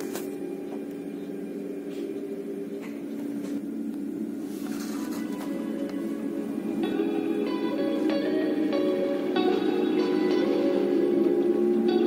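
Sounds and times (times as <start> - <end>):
train electric hum: 0.0 - 12.0.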